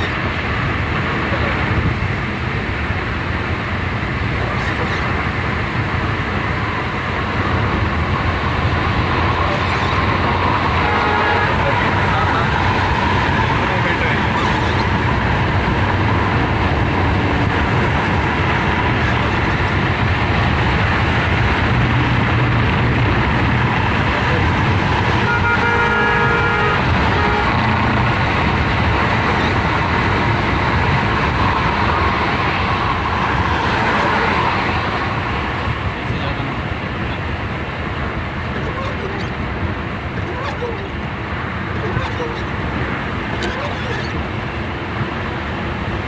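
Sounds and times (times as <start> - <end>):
car road and engine noise: 0.0 - 46.0
vehicle horn: 10.7 - 12.5, 25.2 - 28.0.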